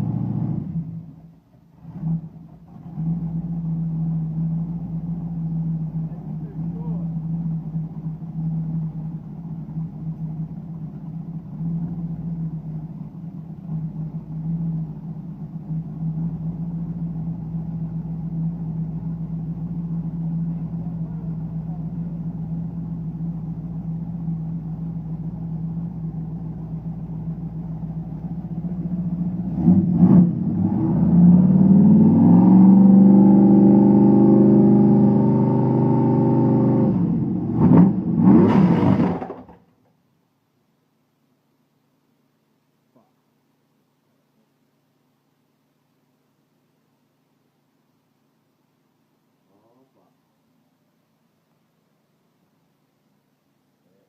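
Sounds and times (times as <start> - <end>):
car engine idling and revving: 0.0 - 39.7.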